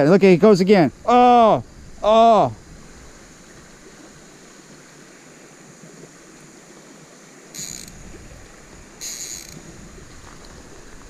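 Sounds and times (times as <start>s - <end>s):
low steady outdoor hiss: 0.0s - 11.0s
fishing reel cranking: 7.5s - 8.1s, 9.0s - 9.7s.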